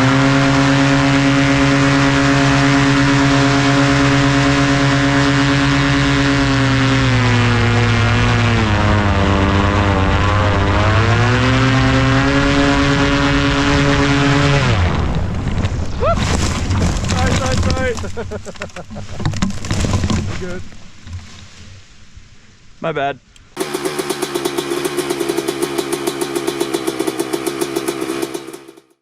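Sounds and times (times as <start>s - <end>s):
paramotor engine and propeller: 0.0s - 15.7s, 23.6s - 29.0s.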